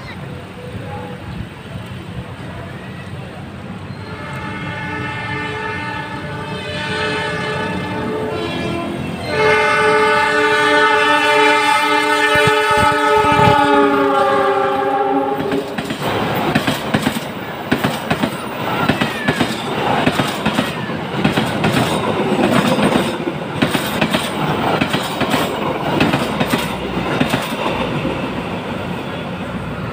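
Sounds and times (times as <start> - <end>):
train horn chord: 4.0 - 15.7
train wheels clattering over rail joints: 15.4 - 28.4.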